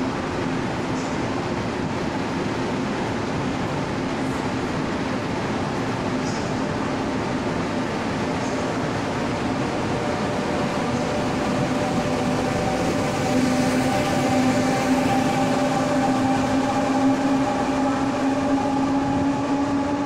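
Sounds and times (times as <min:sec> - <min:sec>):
train carriages rumbling on track: 0:00.0 - 0:20.0
train hum rising in pitch: 0:05.6 - 0:20.0.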